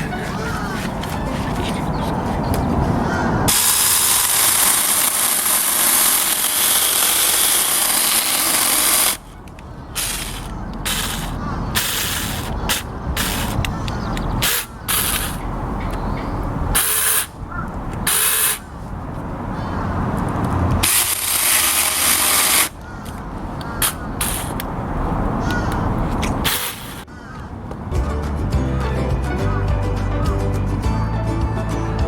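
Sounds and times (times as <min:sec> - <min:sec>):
mini chainsaw running: 0:03.5 - 0:09.3, 0:10.0 - 0:12.5, 0:20.8 - 0:22.7.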